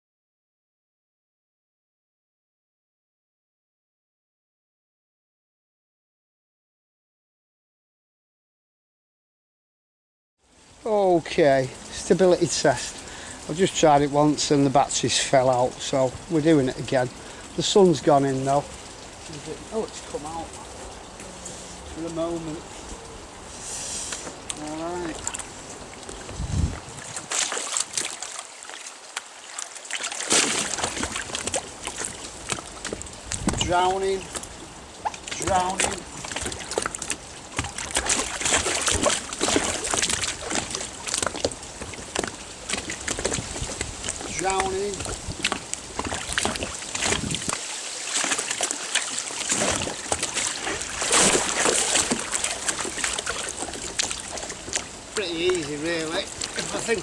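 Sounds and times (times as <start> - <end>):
water splashing around kayak: 23.6 - 57.0.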